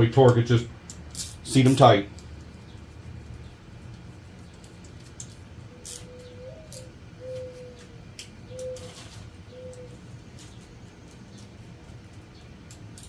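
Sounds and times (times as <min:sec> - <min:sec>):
dove cooing: 0:05.7 - 0:10.0.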